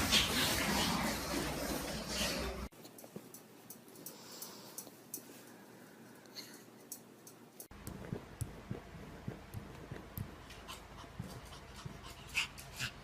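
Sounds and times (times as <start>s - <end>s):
low steady hum: 2.8s - 13.0s.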